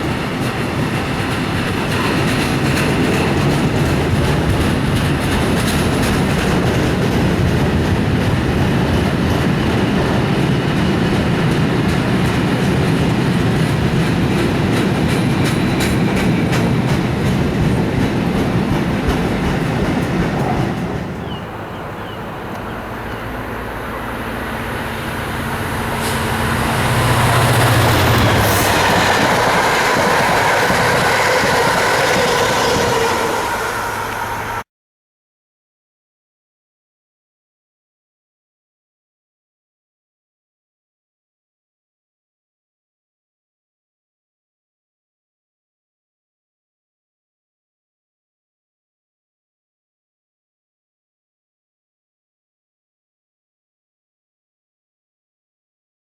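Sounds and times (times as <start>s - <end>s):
train wheels clattering: 0.0s - 34.5s.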